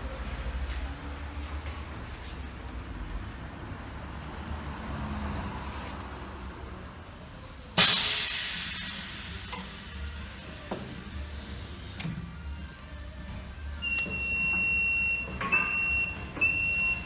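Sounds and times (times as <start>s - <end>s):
compressed air hiss: 7.7s - 12.0s.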